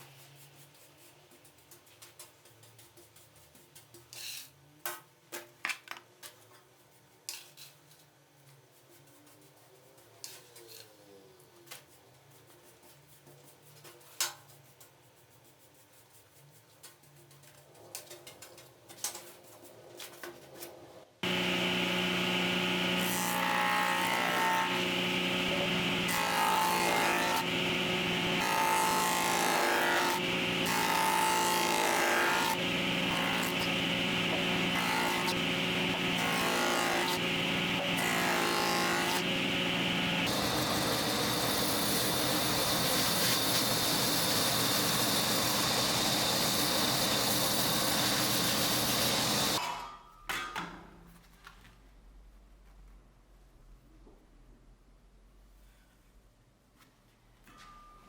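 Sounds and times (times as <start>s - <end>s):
electric power tool running: 21.2s - 49.6s.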